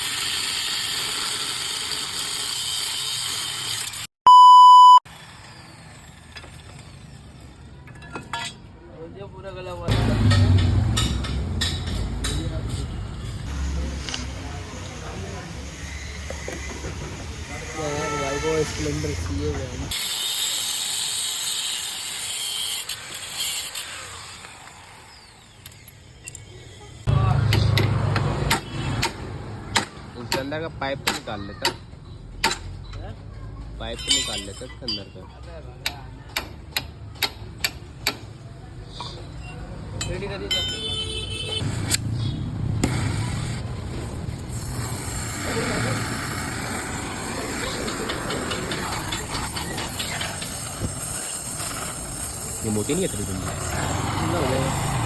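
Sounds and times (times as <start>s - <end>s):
single-pitch beep: 4.3s - 5.0s
power tool hissing whir: 13.5s - 27.1s.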